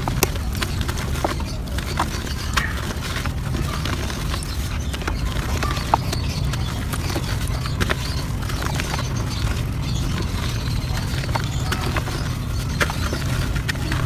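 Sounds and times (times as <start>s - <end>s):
dirt crumbling crackles: 0.0s - 14.0s.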